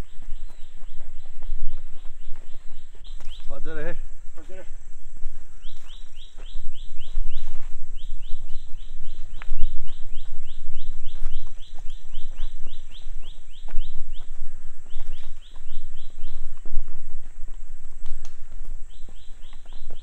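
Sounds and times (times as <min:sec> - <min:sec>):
high insect drone: 0:00.0 - 0:20.0
bird rising chirps: 0:05.6 - 0:16.5.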